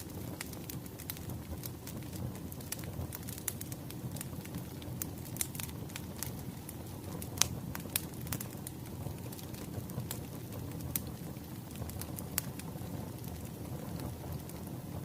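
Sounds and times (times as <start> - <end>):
fire popping and snapping: 0.0 - 15.0
low rush of burning logs: 0.0 - 15.0.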